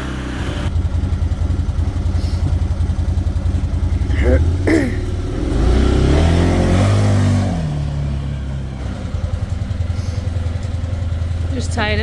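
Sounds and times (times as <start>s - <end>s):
vehicle engine revving and idling: 0.0s - 12.0s.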